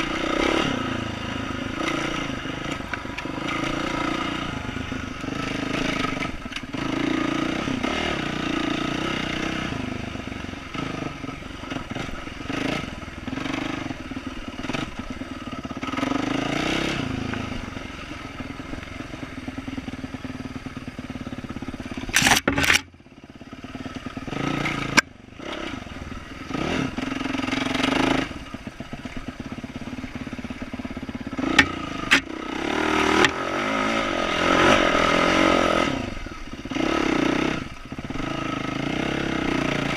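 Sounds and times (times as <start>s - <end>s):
dirt bike engine revving: 0.0s - 39.9s
sharp knocks: 31.5s - 32.3s.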